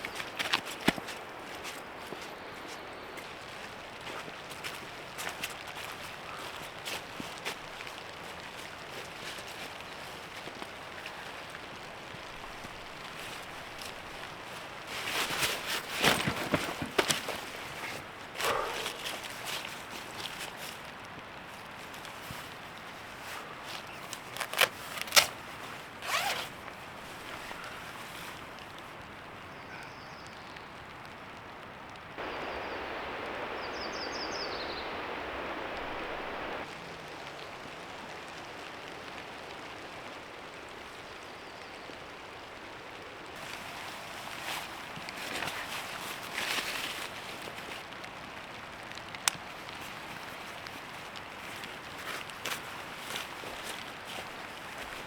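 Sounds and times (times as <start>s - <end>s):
rustling: 0.0s - 29.0s, 32.2s - 36.7s, 43.3s - 55.0s
sharp knocks of camp gear: 15.3s - 19.3s
steady hiss: 32.2s - 38.5s.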